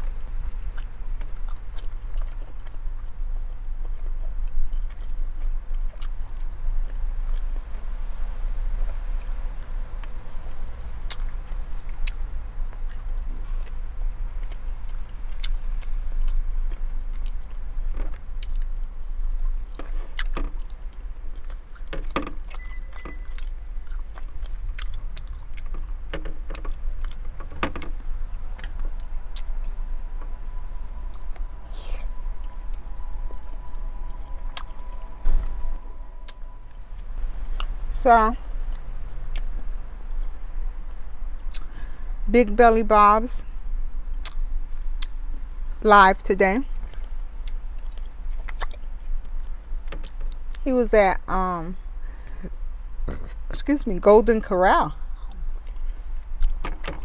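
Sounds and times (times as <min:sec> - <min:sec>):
person chewing and eating: 0:00.0 - 0:07.6, 0:10.8 - 0:37.9, 0:38.6 - 0:41.9, 0:44.0 - 0:45.2, 0:46.7 - 0:50.6, 0:55.0 - 0:57.0
low car interior rumble: 0:00.0 - 0:57.0.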